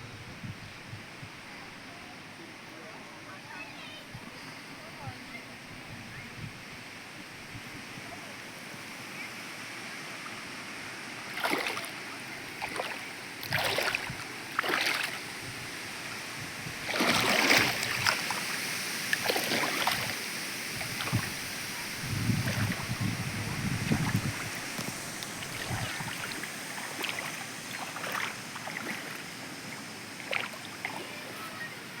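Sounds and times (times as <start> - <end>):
wind rumble on microphone: 0.0 - 2.0, 5.0 - 8.2, 13.4 - 14.4, 15.3 - 18.5, 19.8 - 26.9
water splashing: 11.1 - 32.0.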